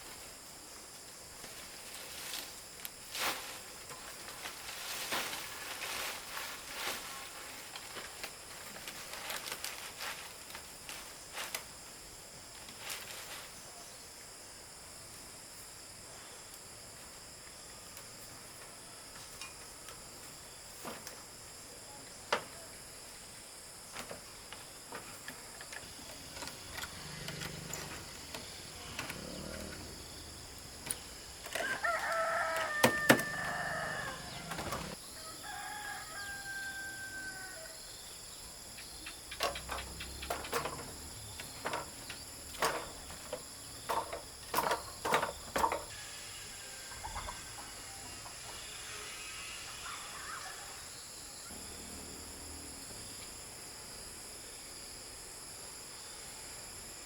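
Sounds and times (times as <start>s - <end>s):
high insect drone: 0.0s - 57.0s
rooster crowing: 31.5s - 37.8s, 45.9s - 51.0s.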